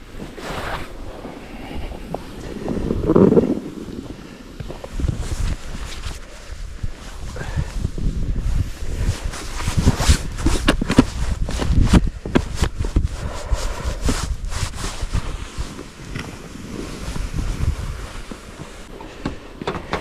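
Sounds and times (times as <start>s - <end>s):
wind rumbling on microphone: 0.0s - 20.0s
knocks and scrapes: 9.0s - 20.0s.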